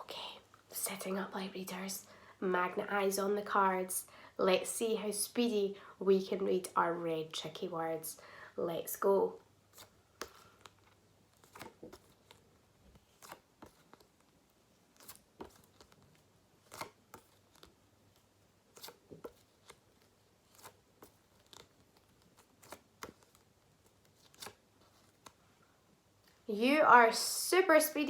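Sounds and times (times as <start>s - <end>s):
paper flashcards flicking: 24.2s - 25.4s.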